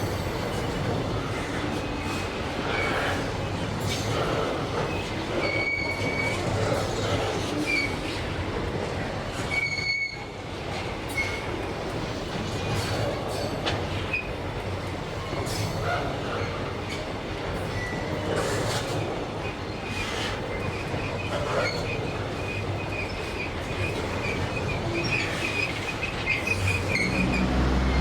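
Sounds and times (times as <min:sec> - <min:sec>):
freight train wagons rumbling: 0:00.0 - 0:28.0
high-pitched wheel squeals: 0:26.4 - 0:28.0.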